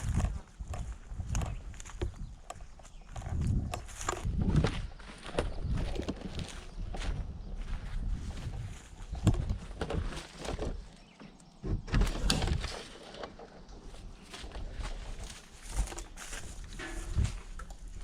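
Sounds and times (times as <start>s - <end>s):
footsteps and scuffing: 0.0s - 11.4s, 12.4s - 18.0s
microphone handling thumps: 0.0s - 12.8s.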